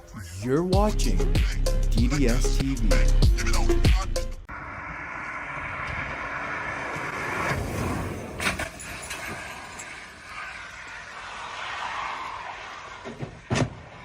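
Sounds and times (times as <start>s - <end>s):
car and road noise: 4.4s - 14.0s.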